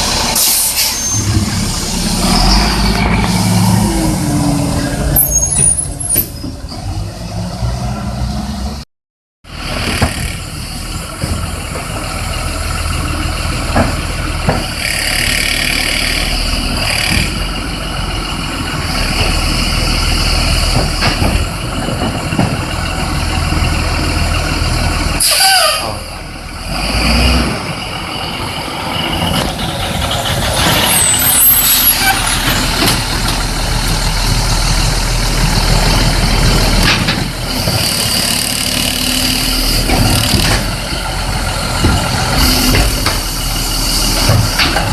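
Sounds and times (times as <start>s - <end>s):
falling squeal: 0.0s - 7.0s, 25.2s - 26.2s, 28.8s - 32.8s
garbage truck engine rumble: 0.0s - 8.8s, 9.5s - 44.9s.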